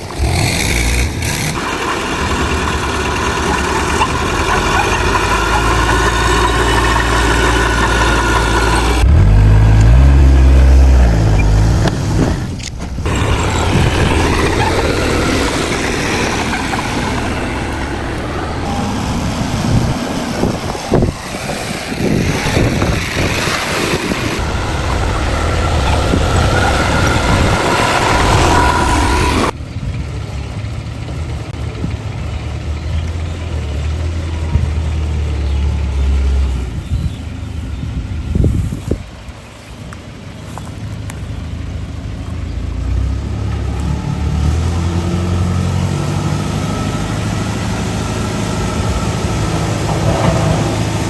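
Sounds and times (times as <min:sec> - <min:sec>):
heavy machinery engine rumble: 0:00.0 - 0:51.0
sharp knocks: 0:49.8 - 0:51.0.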